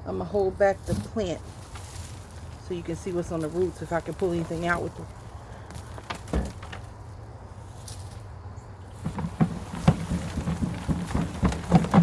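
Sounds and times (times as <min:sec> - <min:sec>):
rustling of roots and soil: 0:00.0 - 0:12.0
short knocks and thuds: 0:09.0 - 0:12.0.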